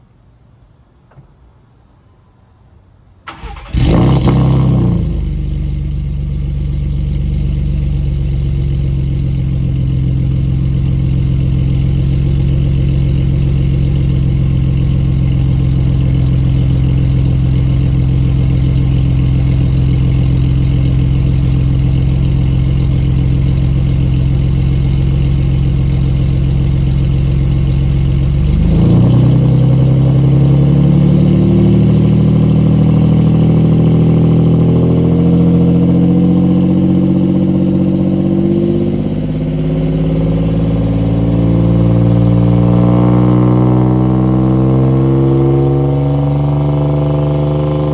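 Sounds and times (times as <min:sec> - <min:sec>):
truck engine starting and idling: 0:03.3 - 0:47.9.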